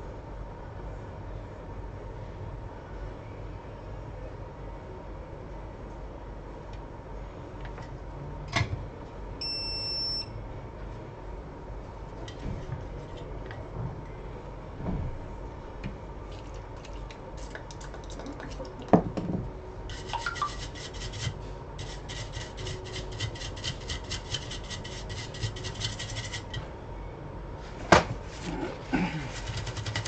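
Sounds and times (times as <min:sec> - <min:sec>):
rapid scrubbing strokes: 0:19.9 - 0:26.5.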